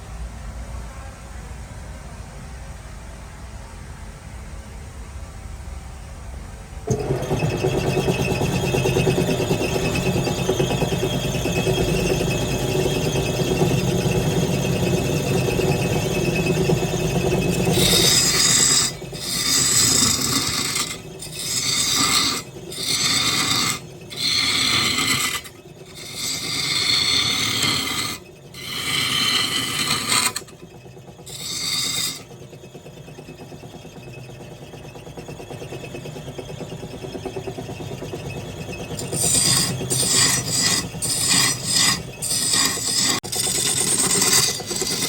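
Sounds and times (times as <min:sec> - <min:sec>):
rasping of wood being turned: 0:06.9 - 0:32.4, 0:38.8 - 0:45.0
wood lathe running: 0:06.9 - 0:45.0.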